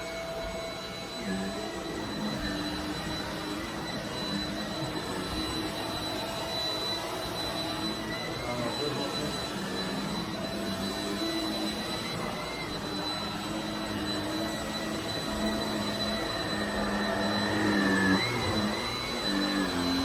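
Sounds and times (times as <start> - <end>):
vacuum cleaner running on carpet: 0.0 - 20.0.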